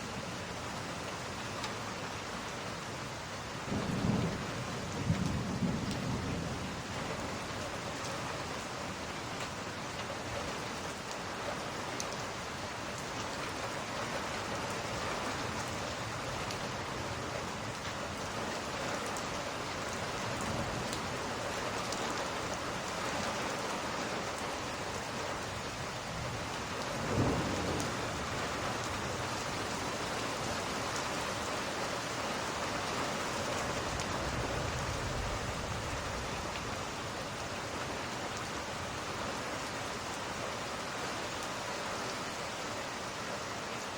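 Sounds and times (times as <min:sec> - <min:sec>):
steady heavy rain: 0:00.0 - 0:43.9
low thunder rumbling: 0:03.7 - 0:07.7, 0:26.2 - 0:29.4.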